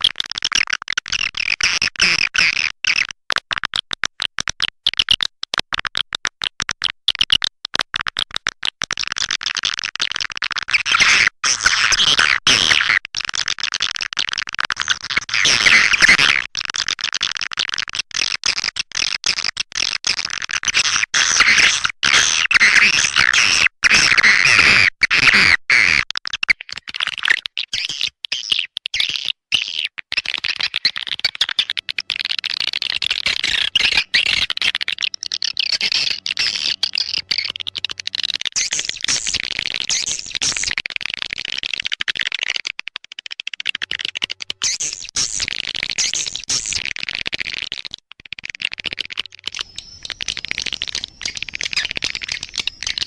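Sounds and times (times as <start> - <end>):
swiftlets twittering: 30.7 - 40.8, 49.1 - 53.0.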